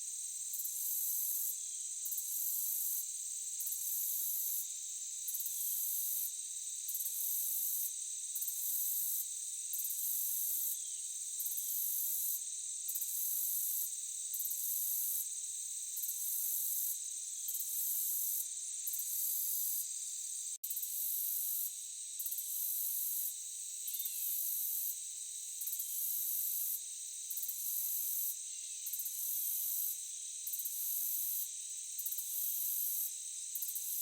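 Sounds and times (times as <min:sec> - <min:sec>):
insects buzzing: 0:09.3 - 0:34.0.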